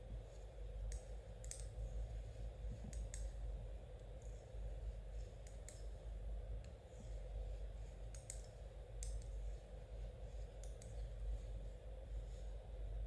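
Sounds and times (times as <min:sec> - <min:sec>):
knitting needles clicking: 0:00.9 - 0:01.7.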